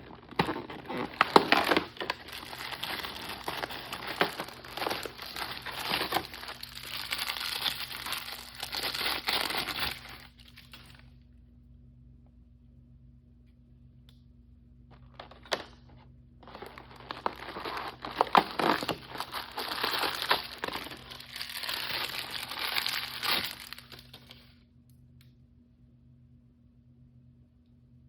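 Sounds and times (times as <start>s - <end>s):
plastic packaging crinkling: 0.0s - 11.0s, 16.4s - 24.5s
faint steady hum: 0.0s - 28.0s.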